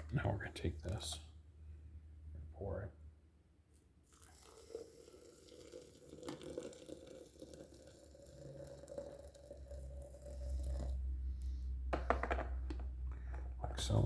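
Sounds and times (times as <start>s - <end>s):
hot water pouring into carafe: 4.1s - 11.2s.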